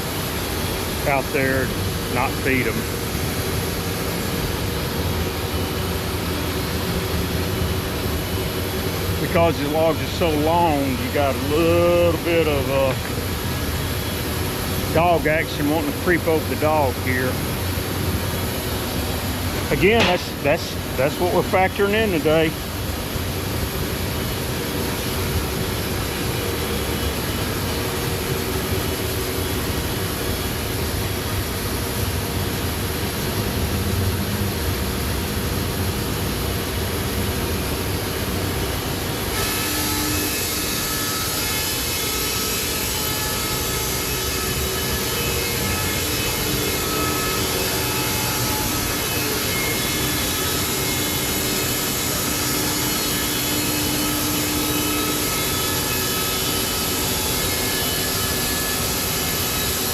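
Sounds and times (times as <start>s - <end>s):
sawmill sawing log: 19.6s - 22.6s, 39.3s - 59.9s.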